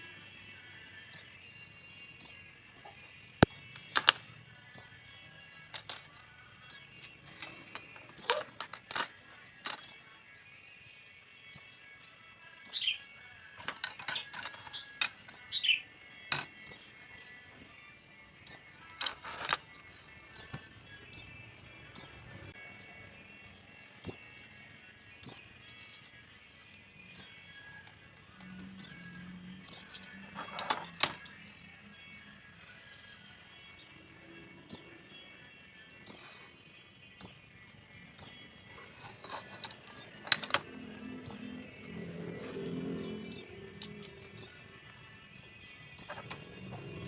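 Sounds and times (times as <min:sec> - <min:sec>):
small bird chirping: 0:01.1 - 0:02.5, 0:03.4 - 0:05.3, 0:06.6 - 0:08.6, 0:09.4 - 0:10.2, 0:11.4 - 0:12.0, 0:12.6 - 0:15.9, 0:16.5 - 0:17.0, 0:18.4 - 0:22.2, 0:23.7 - 0:26.1, 0:26.8 - 0:31.5, 0:32.5 - 0:47.0.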